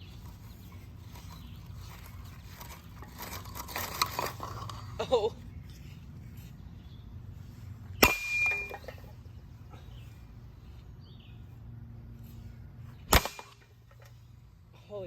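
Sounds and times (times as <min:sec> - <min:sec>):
fan rattling: 0:00.0 - 0:05.3.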